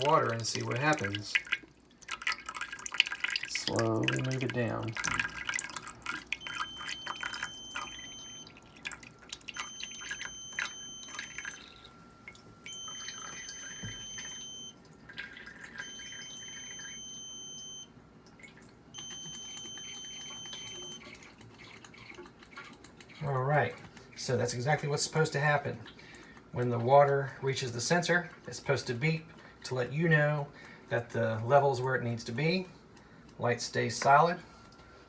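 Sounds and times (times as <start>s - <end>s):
long high electronic beeps: 6.4s - 8.5s, 9.6s - 14.8s.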